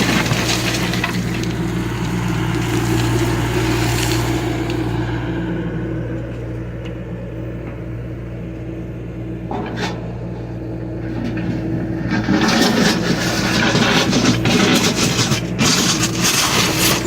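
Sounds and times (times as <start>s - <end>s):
rough grinding noise: 0.0s - 6.2s, 11.0s - 17.0s
diesel excavator engine running: 0.0s - 17.0s.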